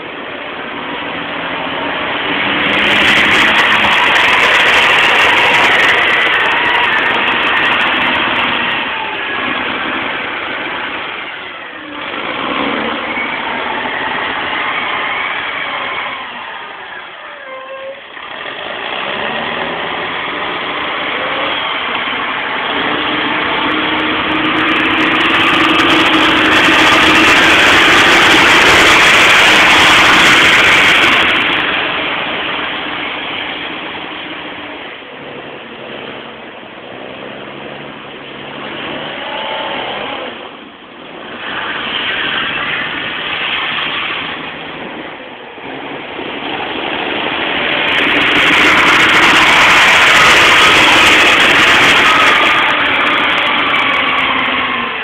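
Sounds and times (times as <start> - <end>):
car engine revving: 0.0 - 17.2, 18.1 - 55.0
hiss: 19.8 - 34.5, 46.2 - 55.0.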